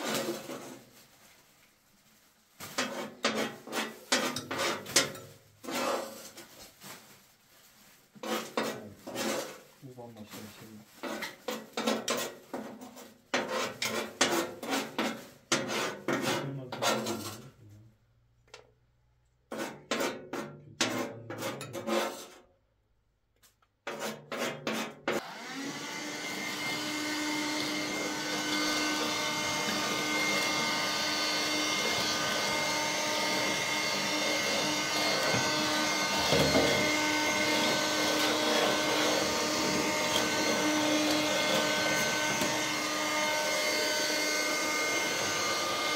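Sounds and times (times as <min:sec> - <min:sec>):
scraping and rubbing strokes: 0:00.0 - 0:17.8, 0:19.5 - 0:22.5, 0:23.4 - 0:25.2, 0:26.2 - 0:45.9
vacuum cleaner running: 0:25.2 - 0:45.9.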